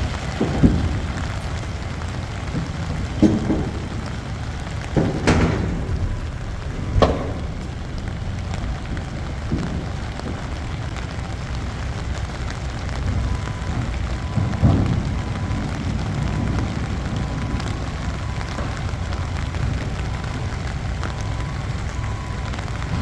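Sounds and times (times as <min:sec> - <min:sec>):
diesel engine rumbling: 0:00.0 - 0:23.0
metallic clunks: 0:02.4 - 0:10.3.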